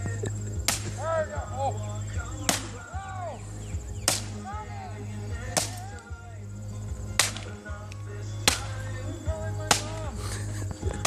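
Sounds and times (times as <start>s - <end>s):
steady low hum: 0.0s - 11.0s
sharp cracks: 0.6s - 1.2s, 2.4s - 2.9s, 4.0s - 4.5s, 5.5s - 6.1s, 7.2s - 8.9s, 9.6s - 11.0s.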